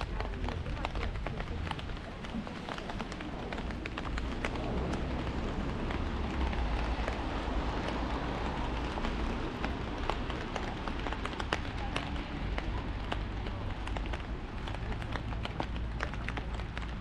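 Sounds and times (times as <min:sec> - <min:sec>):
heavy rain on an umbrella: 0:00.0 - 0:17.0
low rumble: 0:03.2 - 0:09.9.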